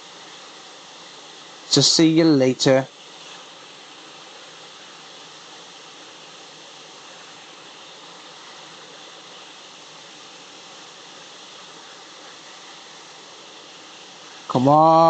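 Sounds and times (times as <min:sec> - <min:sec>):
hot air station hissing: 0:00.0 - 0:15.0.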